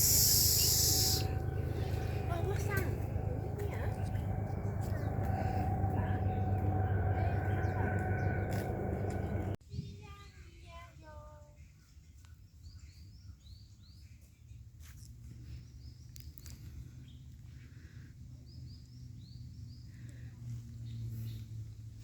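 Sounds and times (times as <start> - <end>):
small bird chirping: 0.0 - 2.8
low rumble: 0.0 - 9.6.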